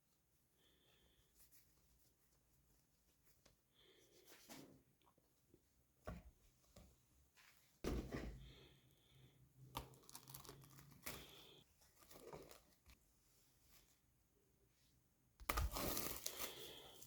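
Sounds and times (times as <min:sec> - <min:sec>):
crinkling and rustling: 0:09.7 - 0:14.0, 0:15.4 - 0:17.0.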